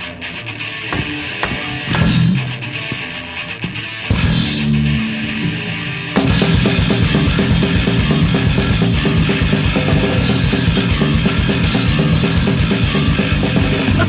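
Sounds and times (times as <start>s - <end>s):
distorted electric guitars: 0.0s - 14.0s
fast drumbeat: 0.9s - 2.6s
bass guitar: 0.9s - 3.1s, 3.7s - 14.0s.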